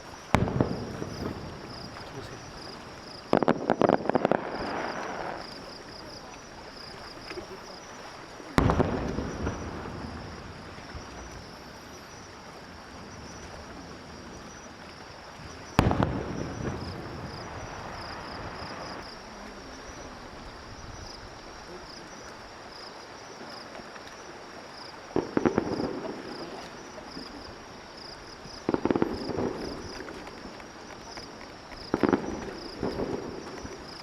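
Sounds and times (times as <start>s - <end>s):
fireworks crackling bangs: 0.0s - 20.2s, 25.1s - 34.0s
firework shell bursts booming: 0.3s - 2.3s, 8.6s - 10.3s, 15.8s - 19.0s.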